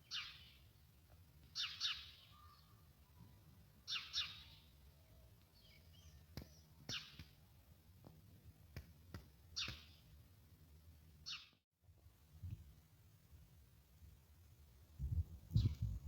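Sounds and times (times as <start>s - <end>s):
songbird chirping: 0.0s - 7.2s.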